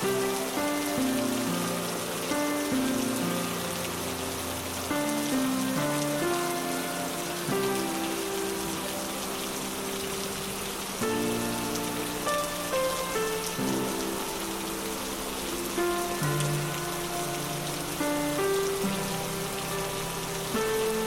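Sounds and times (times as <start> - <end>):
soft sustained music chords: 0.0 - 21.0
steady rain falling: 0.0 - 21.0.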